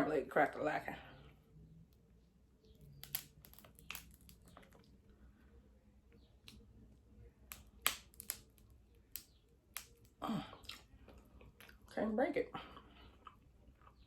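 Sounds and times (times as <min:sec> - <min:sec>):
crab shell cracking: 0:02.7 - 0:05.0, 0:07.4 - 0:11.0.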